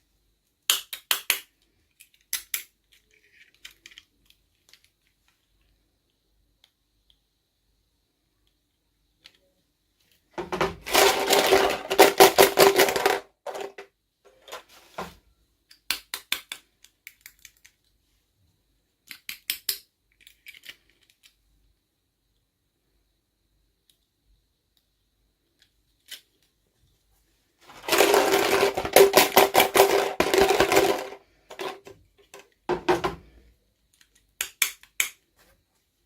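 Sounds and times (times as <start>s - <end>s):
plastic toy pieces clicking: 0.6s - 5.7s, 10.8s - 13.9s, 15.7s - 17.9s, 19.0s - 21.4s, 27.8s - 32.6s, 33.9s - 35.2s
packaging rustling and tearing: 27.7s - 31.8s.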